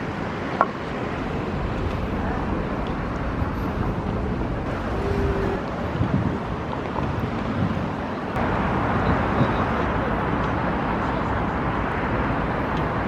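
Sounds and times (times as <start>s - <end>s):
vehicle sound: 0.0s - 7.4s
outdoor street noise: 0.0s - 13.0s.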